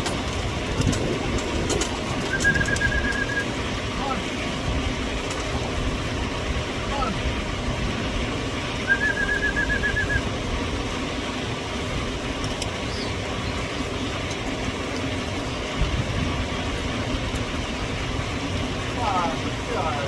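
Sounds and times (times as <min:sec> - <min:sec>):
wind on microphone: 0:00.0 - 0:10.8, 0:15.7 - 0:19.0
trilled whistle: 0:02.2 - 0:03.5, 0:08.9 - 0:10.2.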